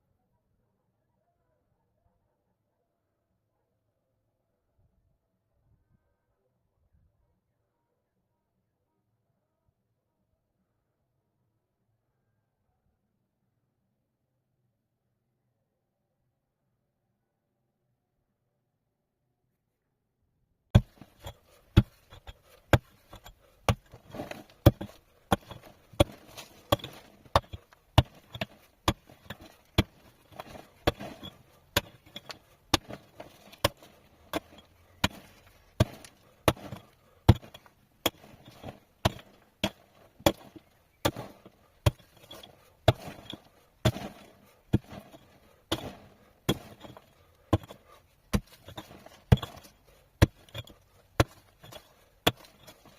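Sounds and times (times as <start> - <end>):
hand tool striking hard material: 20.8 - 52.9.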